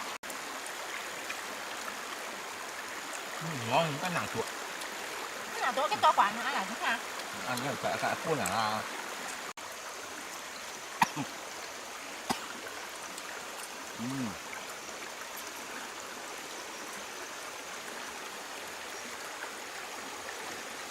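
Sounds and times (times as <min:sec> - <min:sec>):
flowing water: 0:00.0 - 0:20.9.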